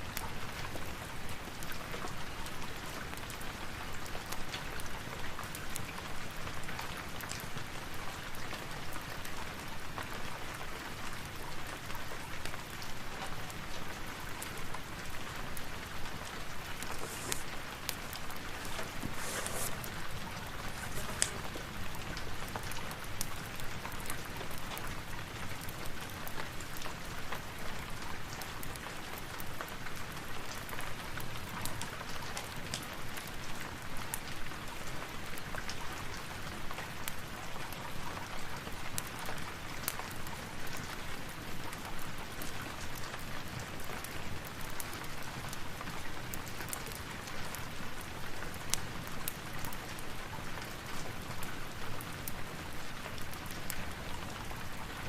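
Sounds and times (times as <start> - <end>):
steady rain hiss: 0.0 - 55.0
fireplace crackling: 14.2 - 26.8.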